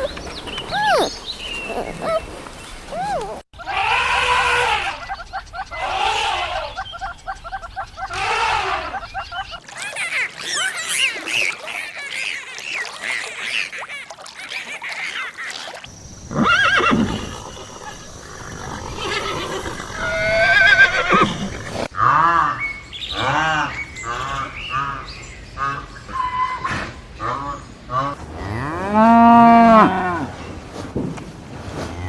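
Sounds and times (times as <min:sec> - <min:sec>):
horse neighing: 0:00.0 - 0:02.3, 0:15.9 - 0:21.9
high chirping calls: 0:00.0 - 0:03.8, 0:15.9 - 0:21.9.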